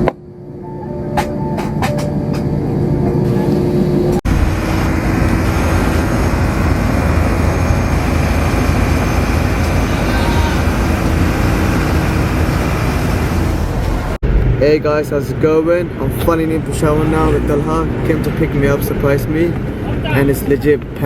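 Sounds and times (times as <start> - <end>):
vehicle rushing drone: 0.0 - 21.0.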